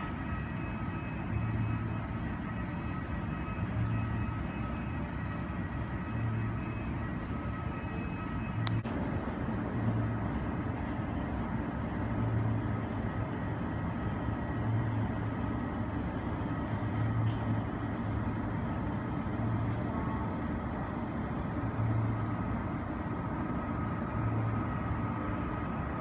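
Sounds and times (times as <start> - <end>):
airport apron rumble: 0.0 - 26.0.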